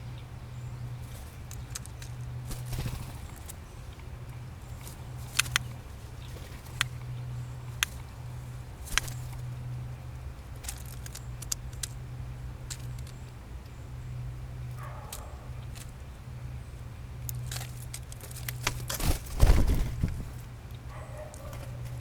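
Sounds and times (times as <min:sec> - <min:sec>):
steady low hum: 0:00.0 - 0:22.0
blue jay clicks: 0:01.5 - 0:08.1, 0:08.9 - 0:09.6, 0:10.6 - 0:13.8, 0:14.7 - 0:16.1, 0:20.3 - 0:22.0.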